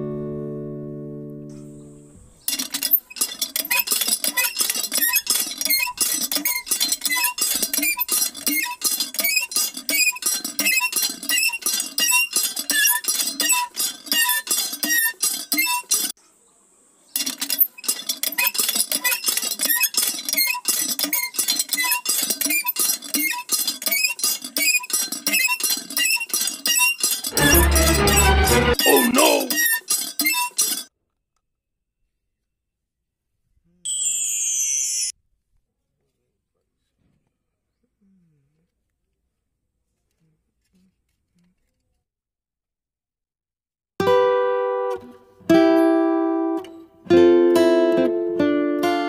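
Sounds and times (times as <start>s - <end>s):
water pump lever squeaking and clicking: 2.5s - 16.1s, 17.2s - 28.9s, 29.5s - 30.9s.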